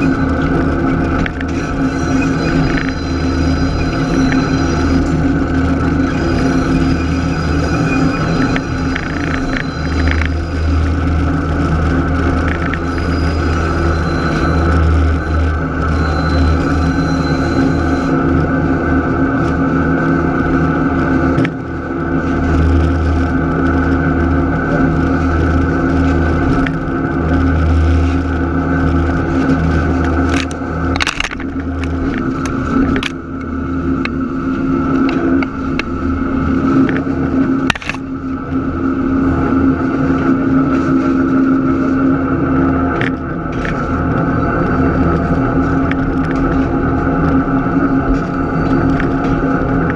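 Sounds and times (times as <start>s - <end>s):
diesel locomotive engine droning: 0.0s - 49.9s.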